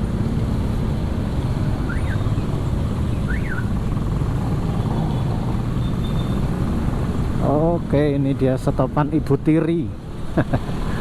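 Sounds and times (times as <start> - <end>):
motorcycle engine hum: 0.0 - 8.5
road and wind noise: 0.0 - 11.0.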